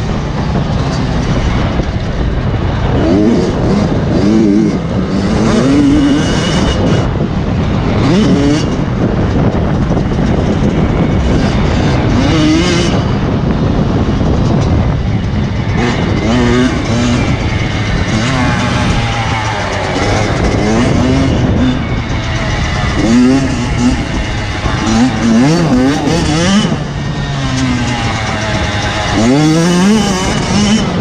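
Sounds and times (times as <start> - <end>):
motorcycle engines revving: 0.0 - 31.0
low rumble: 6.7 - 31.0.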